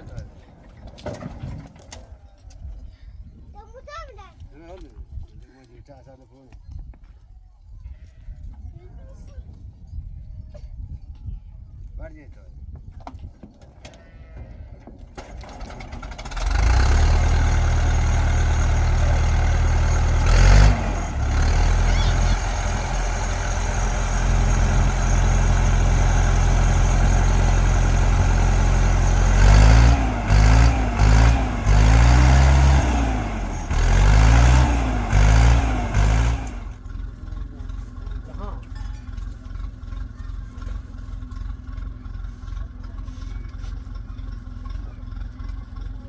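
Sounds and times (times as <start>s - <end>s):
vehicle engine running and revving: 15.6s - 46.0s.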